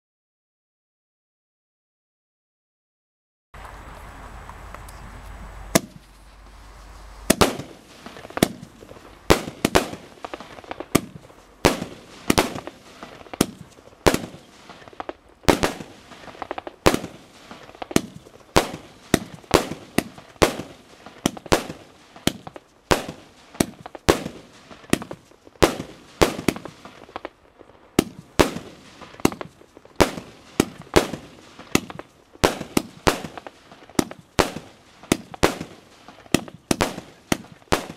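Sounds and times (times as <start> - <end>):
firework bangs: 5.7 - 37.9.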